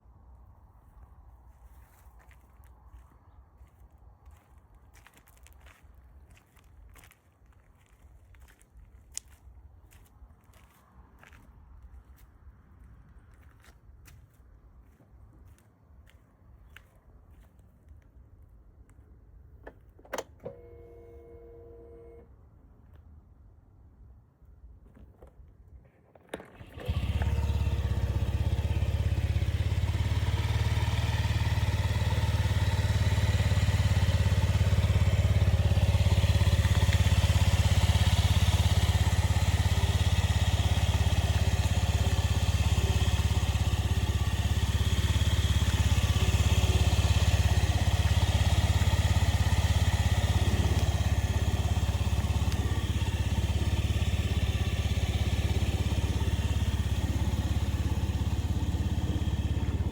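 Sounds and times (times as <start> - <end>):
scooter engine idling: 26.6 - 59.9.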